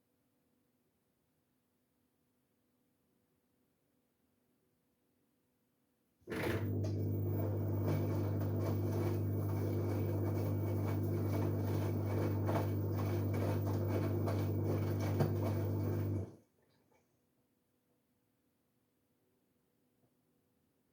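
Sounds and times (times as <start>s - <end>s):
washing machine humming: 6.3s - 16.4s.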